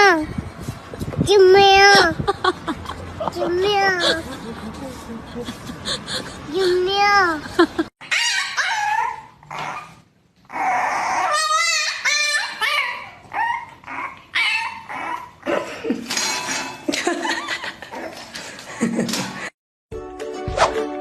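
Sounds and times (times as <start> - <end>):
dog barking and yipping: 8.0 - 10.0, 10.6 - 15.4
dog whining: 8.0 - 15.6.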